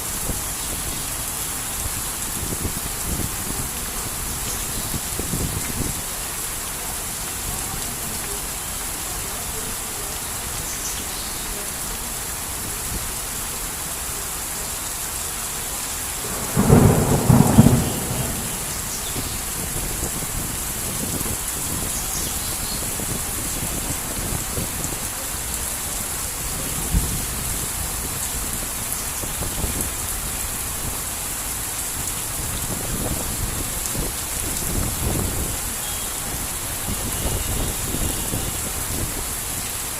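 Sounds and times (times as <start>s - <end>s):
heavy rain falling: 0.0s - 39.9s
thunder clap rumbling: 16.2s - 21.2s.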